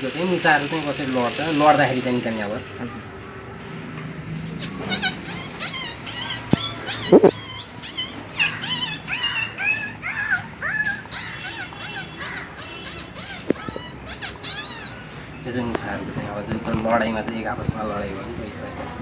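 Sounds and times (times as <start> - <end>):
man imitating rat squeaks: 4.6 - 15.0.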